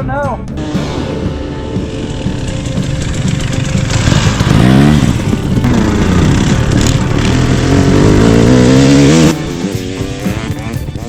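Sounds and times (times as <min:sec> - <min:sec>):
dirt bike engine revving: 0:00.6 - 0:11.0.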